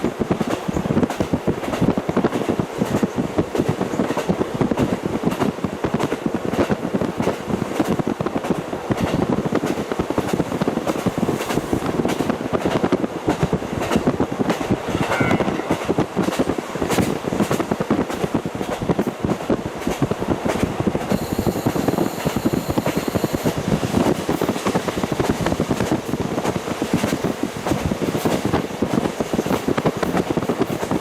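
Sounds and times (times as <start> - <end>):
wheels rumbling on rail: 0.0 - 31.0
track clicks: 21.1 - 23.6.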